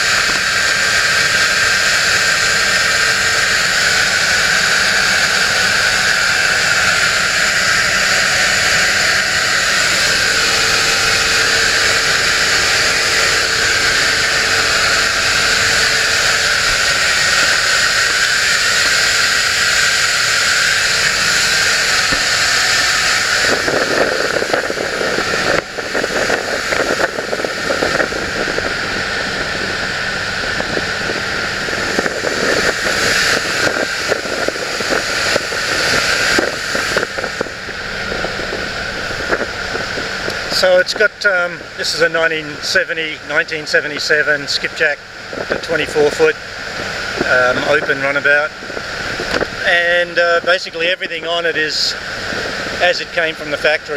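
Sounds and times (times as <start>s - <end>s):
water rushing: 0.0s - 41.8s
wind buffeting microphone: 0.0s - 41.8s, 44.8s - 51.3s, 51.9s - 53.3s
boat engine rushing: 0.0s - 53.9s.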